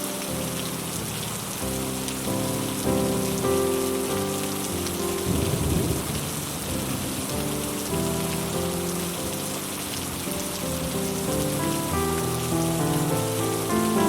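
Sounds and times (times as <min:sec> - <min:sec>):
heavy rain on a metal roof: 0:00.0 - 0:14.0
soft music of held notes: 0:00.0 - 0:14.0
low rumble of thunder: 0:05.1 - 0:07.4.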